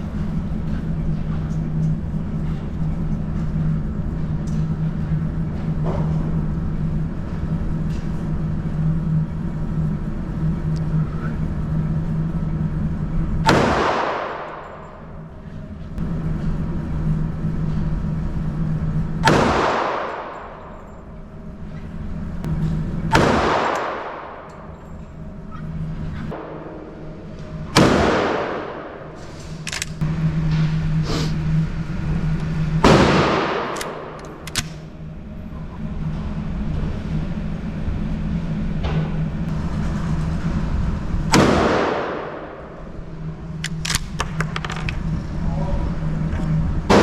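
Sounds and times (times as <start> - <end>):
low ventilation hum: 0.0 - 47.0
gunshots with reverberant ring: 13.4 - 15.6, 19.2 - 21.3, 23.0 - 25.4, 26.3 - 30.0, 32.8 - 34.9, 41.3 - 44.5
sharp metallic clicks: 29.4 - 30.0, 33.5 - 34.9.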